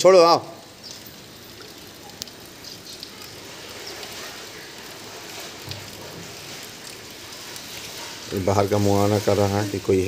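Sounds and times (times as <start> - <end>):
light rain falling: 0.0 - 10.0
faint drip ticks: 0.4 - 8.5.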